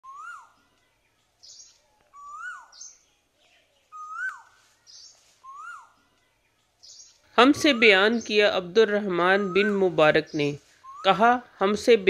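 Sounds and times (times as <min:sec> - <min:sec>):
rising and falling whistled bird call: 0:00.0 - 0:00.5, 0:01.4 - 0:03.1, 0:03.8 - 0:05.9, 0:10.8 - 0:11.1
high quick bird chirps: 0:03.8 - 0:05.9.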